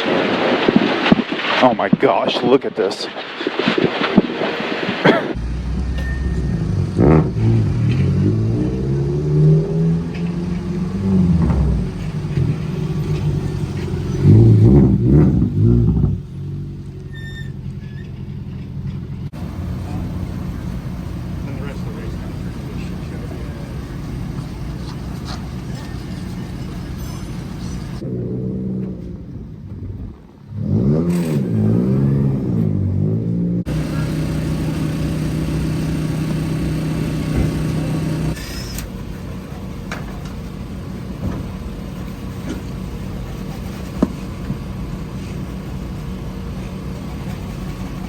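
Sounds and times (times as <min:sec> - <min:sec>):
road noise: 0:00.0 - 0:48.0
car engine revving hard: 0:05.1 - 0:16.8, 0:30.5 - 0:38.5.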